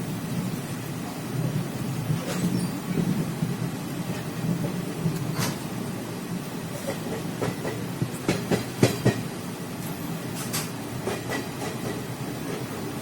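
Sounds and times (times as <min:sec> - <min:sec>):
train rumbling along track: 0:00.0 - 0:13.0
wheels clacking over rail joints: 0:03.9 - 0:05.8, 0:06.7 - 0:13.0.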